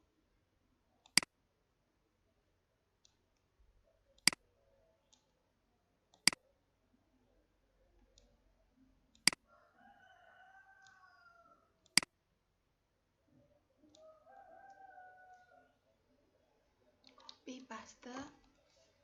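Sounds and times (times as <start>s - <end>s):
computer mouse clicks: 1.0s - 1.3s, 4.2s - 4.4s, 6.2s - 6.4s, 9.2s - 9.4s, 11.8s - 12.1s.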